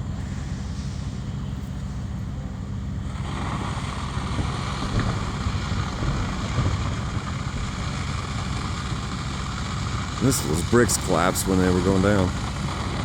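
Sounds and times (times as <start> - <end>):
fire engine pump droning: 0.0 - 13.0.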